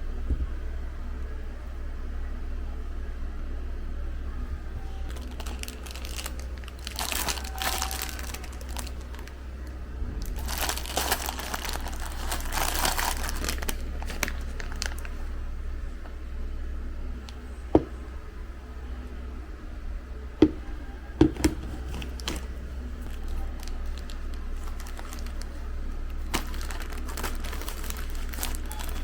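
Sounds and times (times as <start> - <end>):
steady low hum: 0.0 - 29.0
packaging crinkling: 5.0 - 9.4, 10.2 - 15.2, 21.2 - 29.0.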